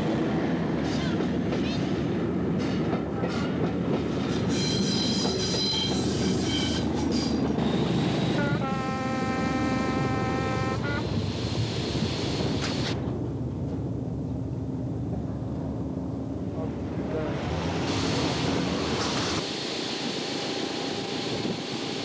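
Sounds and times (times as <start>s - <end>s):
train horn: 8.3s - 11.1s.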